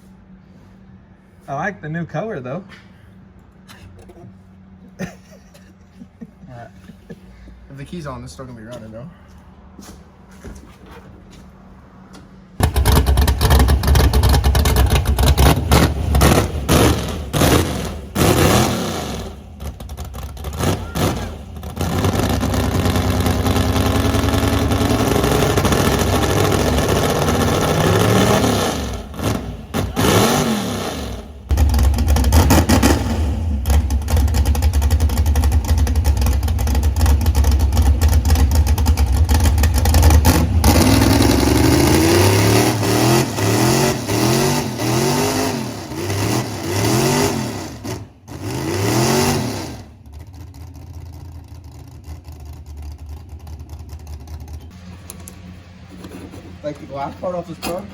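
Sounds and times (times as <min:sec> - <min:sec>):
truck engine revving hard: 0:12.6 - 0:50.2.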